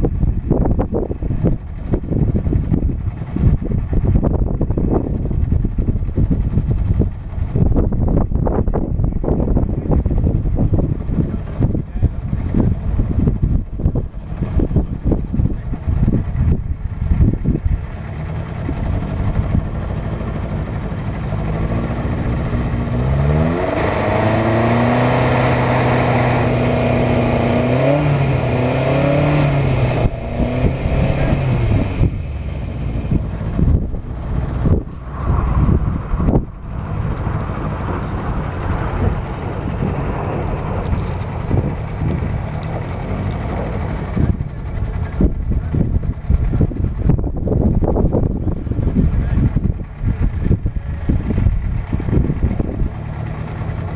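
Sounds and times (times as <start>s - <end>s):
rough rumble with knocks: 0.0s - 53.9s
car engine revving hard: 18.2s - 45.3s.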